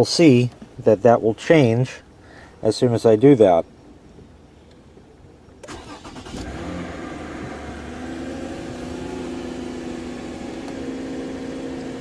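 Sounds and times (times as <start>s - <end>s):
starter motor cranking: 5.6s - 7.0s
car engine idling: 5.6s - 12.0s.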